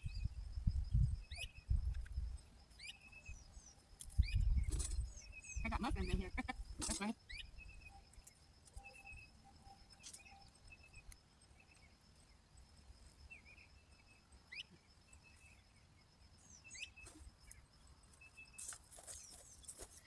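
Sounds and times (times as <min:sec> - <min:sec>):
birds chirping and whistling: 0:02.8 - 0:08.0.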